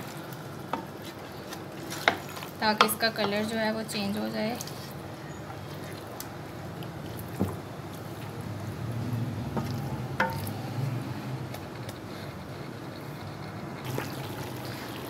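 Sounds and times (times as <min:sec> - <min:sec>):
spoon knocking against pot: 0:10.2 - 0:10.5.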